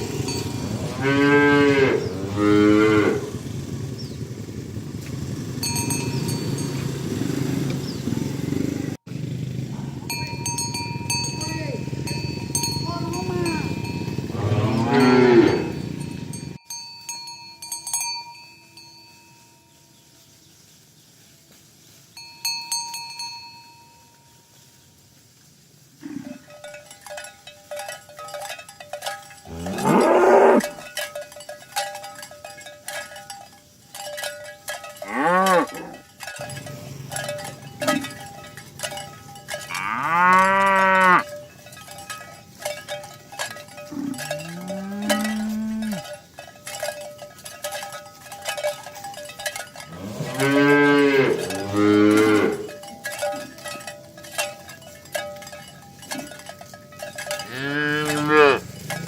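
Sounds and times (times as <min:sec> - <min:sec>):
cattle mooing: 0:00.0 - 0:03.6, 0:13.6 - 0:16.0, 0:29.5 - 0:30.8, 0:35.0 - 0:36.0, 0:39.6 - 0:41.2, 0:43.9 - 0:46.0, 0:49.9 - 0:52.8, 0:57.4 - 0:59.0
cowbells clanking: 0:00.0 - 0:08.4, 0:09.2 - 0:20.4, 0:22.0 - 0:24.9, 0:25.8 - 0:59.0.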